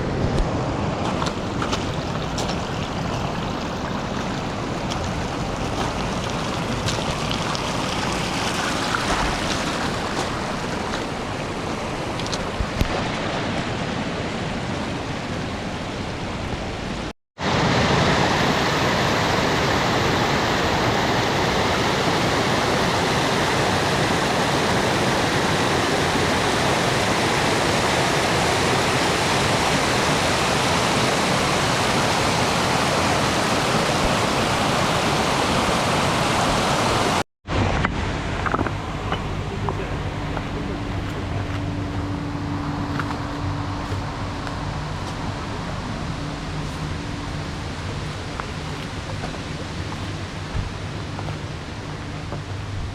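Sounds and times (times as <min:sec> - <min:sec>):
rushing flowing water: 0:00.0 - 0:52.9.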